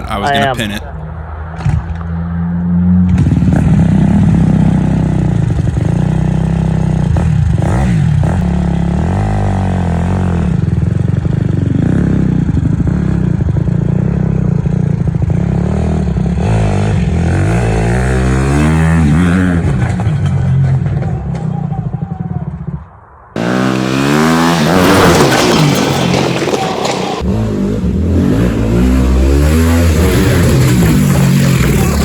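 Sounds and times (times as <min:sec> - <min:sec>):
dirt bike engine revving: 0:03.0 - 0:20.3, 0:23.4 - 0:32.0.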